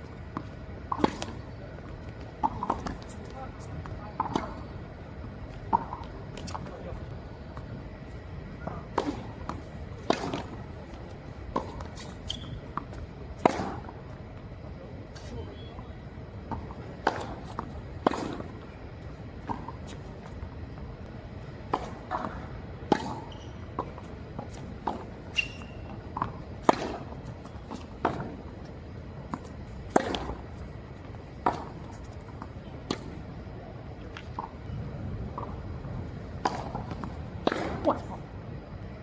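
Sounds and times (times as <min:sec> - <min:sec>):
racket striking tennis ball: 0:00.4 - 0:04.6, 0:08.6 - 0:12.6, 0:13.4 - 0:13.9, 0:21.7 - 0:28.4, 0:29.3 - 0:33.2, 0:35.4 - 0:38.2.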